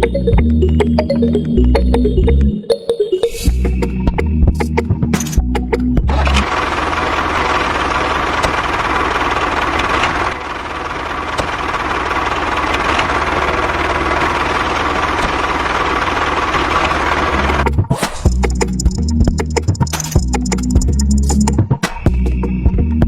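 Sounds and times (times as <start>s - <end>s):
small engine running: 6.1s - 21.5s.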